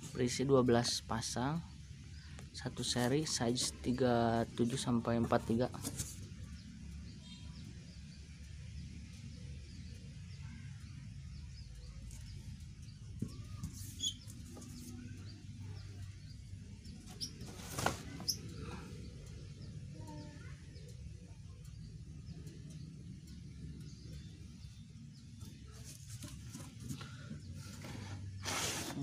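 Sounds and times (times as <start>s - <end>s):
low background rumble: 3.8s - 28.4s
faint bird chirps: 6.2s - 27.9s.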